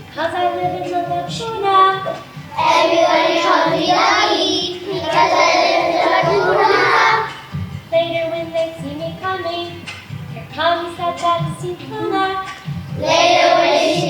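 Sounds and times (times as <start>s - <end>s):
children singing together: 0.0s - 7.6s, 11.2s - 14.0s
music: 0.0s - 14.0s.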